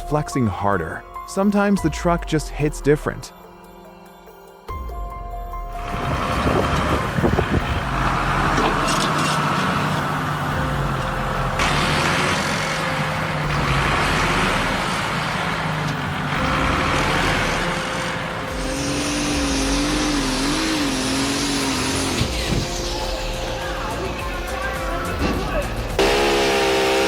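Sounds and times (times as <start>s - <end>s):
heavy vehicle engines running: 5.5s - 27.0s.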